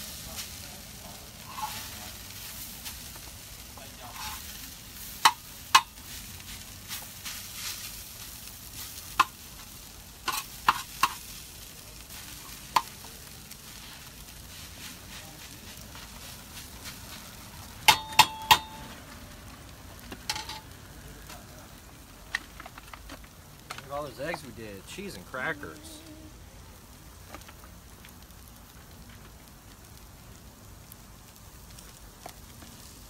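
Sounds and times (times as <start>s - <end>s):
food sizzling in a pan: 0.0s - 22.2s, 23.9s - 33.0s
metal utensil clanking: 1.5s - 1.9s, 20.3s - 20.7s.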